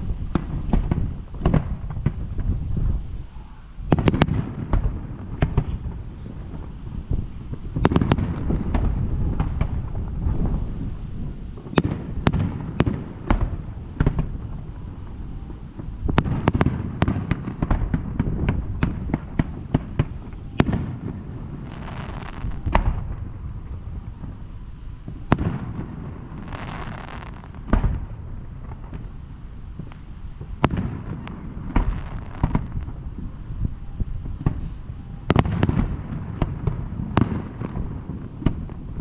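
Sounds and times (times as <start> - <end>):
fireworks booming: 0.0 - 39.0
fireworks crackling: 0.0 - 39.0
short hiss: 5.5 - 6.4, 17.3 - 17.8.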